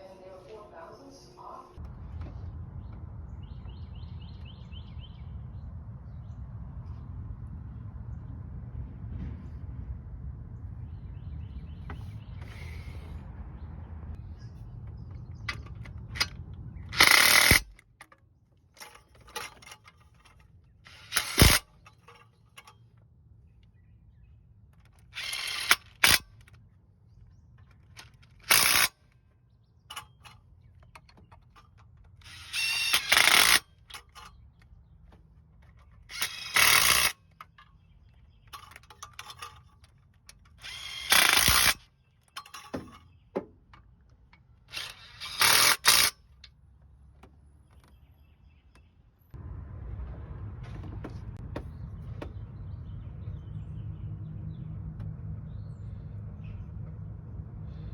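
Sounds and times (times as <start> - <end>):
power tool bursts: 16.9 - 17.8, 18.8 - 21.6, 25.0 - 26.2, 28.0 - 28.9, 32.2 - 34.3, 36.1 - 37.3, 40.6 - 41.8, 44.7 - 46.2.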